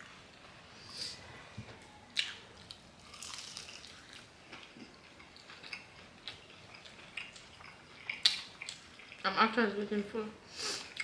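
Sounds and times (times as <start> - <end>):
chewing crispy fried chicken: 2.1 - 9.5.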